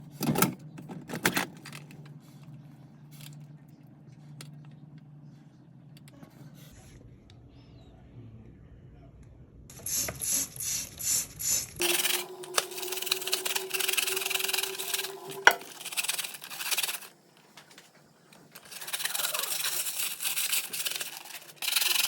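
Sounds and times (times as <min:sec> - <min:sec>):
faint low hum: 0:01.6 - 0:22.0
hard objects clattering: 0:11.8 - 0:22.0.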